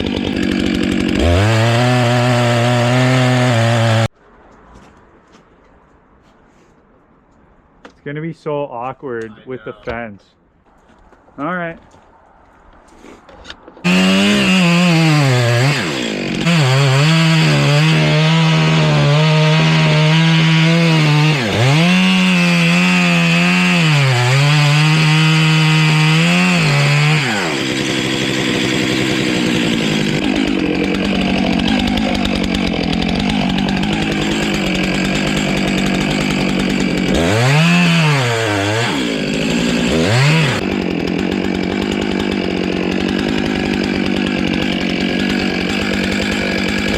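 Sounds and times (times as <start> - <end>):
chainsaw cutting wood: 0.0 - 4.2, 13.8 - 46.9.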